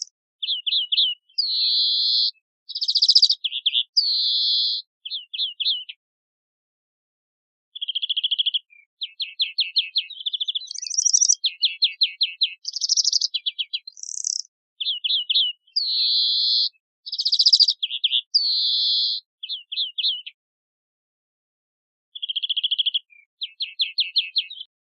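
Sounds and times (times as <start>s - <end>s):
greenfinch twittering trills: 0.0s - 6.0s, 7.8s - 20.3s.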